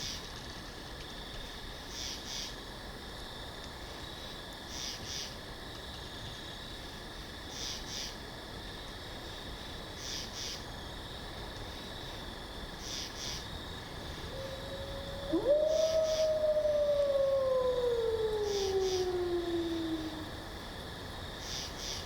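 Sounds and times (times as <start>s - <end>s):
faint forest ambience: 0.0s - 22.0s
dog howling: 14.2s - 20.4s.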